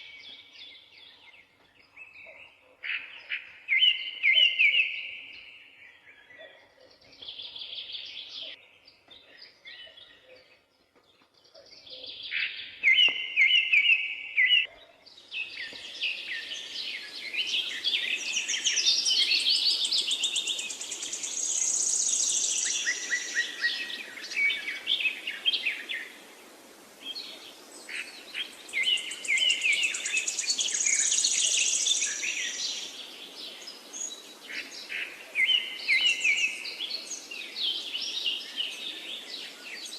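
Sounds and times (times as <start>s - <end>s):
songbirds singing and chirping: 0.0s - 39.9s
steady background hiss: 15.2s - 39.9s.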